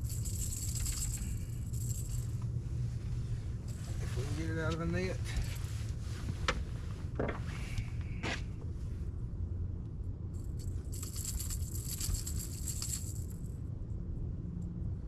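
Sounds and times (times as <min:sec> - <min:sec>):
metallic rattling and scraping: 0:00.0 - 0:02.4
steady low rumble: 0:00.0 - 0:15.0.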